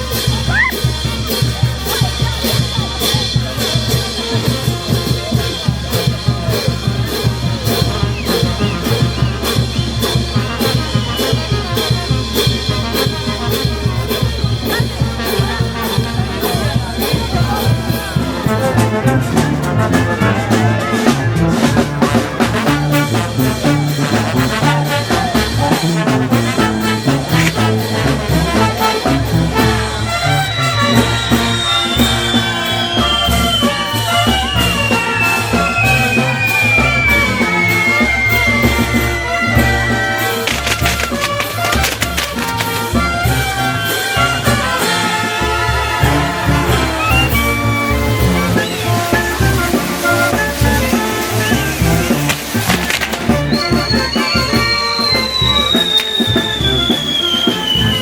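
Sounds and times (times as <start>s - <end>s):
brass band playing festive music: 0.0s - 58.0s
drums keeping fast beat: 0.0s - 58.0s
trumpets and trombones: 0.0s - 58.0s.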